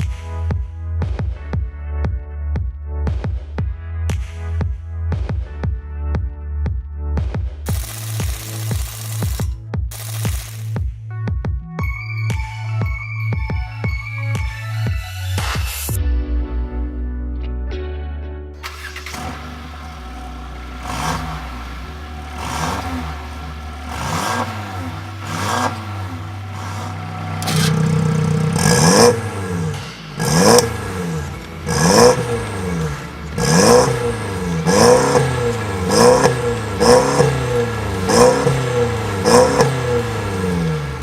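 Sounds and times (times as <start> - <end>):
car engine revving: 18.6 - 41.0.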